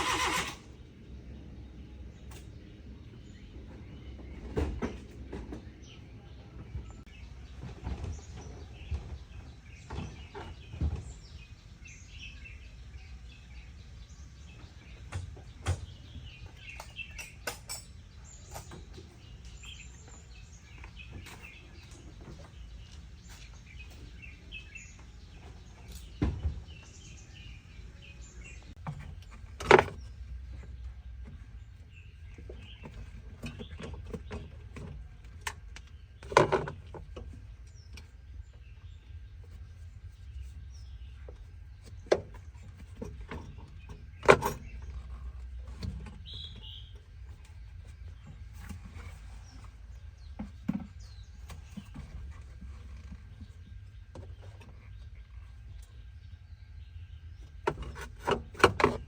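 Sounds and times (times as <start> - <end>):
birds chirping: 0.0 - 59.0
sharp knocks and clinks: 16.6 - 19.1.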